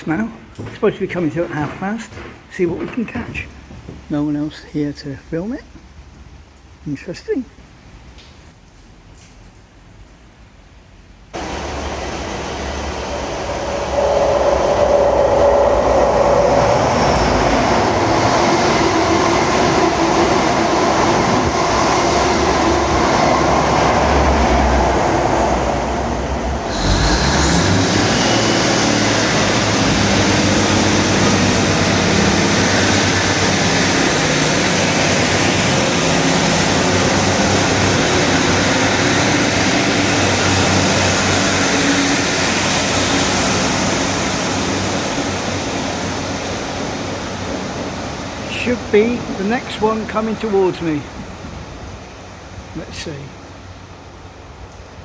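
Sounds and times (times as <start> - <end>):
train running past: 0.0 - 6.5, 11.3 - 55.0
broad rushing noise: 11.4 - 54.1.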